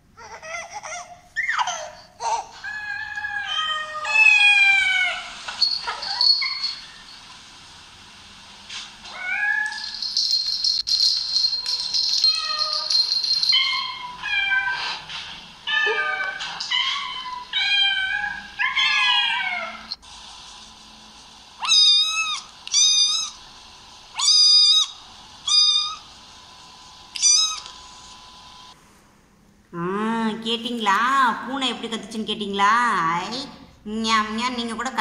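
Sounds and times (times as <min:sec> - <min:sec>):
cat meowing: 0:15.7 - 0:19.9, 0:27.2 - 0:27.7.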